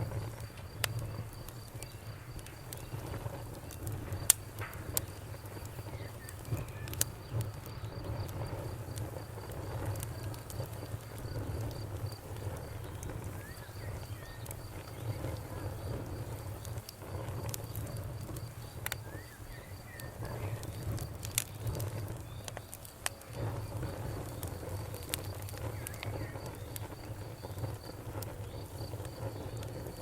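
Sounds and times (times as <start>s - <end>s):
bonfire crackling and popping: 0.0s - 30.0s
cricket chirping: 0.0s - 30.0s.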